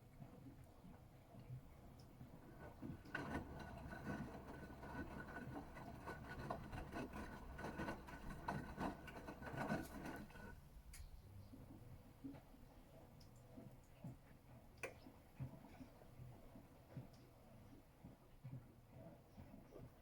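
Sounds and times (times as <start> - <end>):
washing machine motor whine: 2.4 - 10.6.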